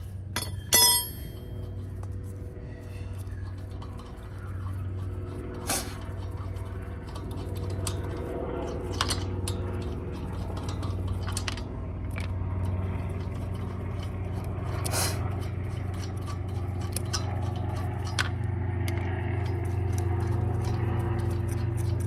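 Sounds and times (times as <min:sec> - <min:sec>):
steady low hum: 0:00.0 - 0:22.0
metal hand tools clinking: 0:00.4 - 0:01.9.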